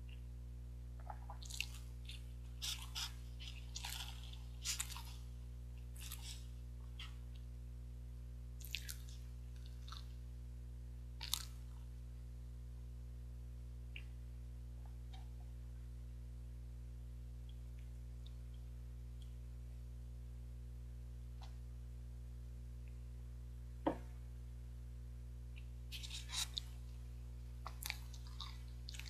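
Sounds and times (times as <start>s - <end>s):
steady low hum: 0.0s - 29.0s
wet chewing smacks and clicks: 1.0s - 5.2s, 8.6s - 10.1s, 11.2s - 11.6s, 27.6s - 29.0s.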